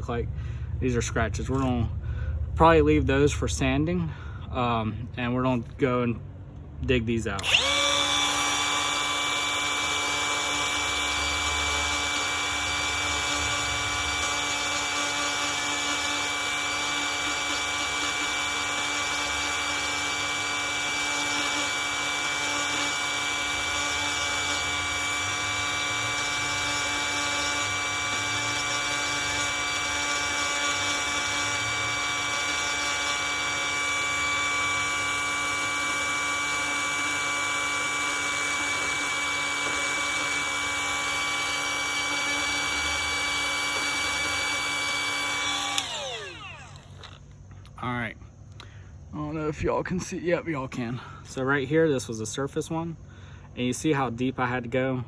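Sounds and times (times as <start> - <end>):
bit grinding fiberglass: 7.1 - 47.8
rotary tool whining: 7.3 - 47.8.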